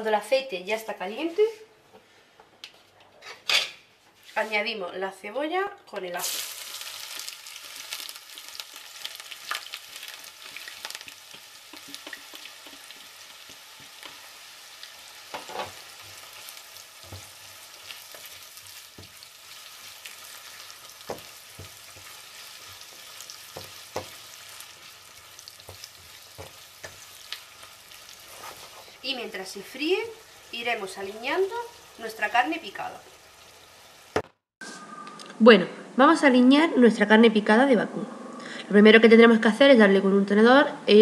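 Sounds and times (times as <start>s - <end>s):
onion sizzling in frying pan: 6.1s - 34.3s.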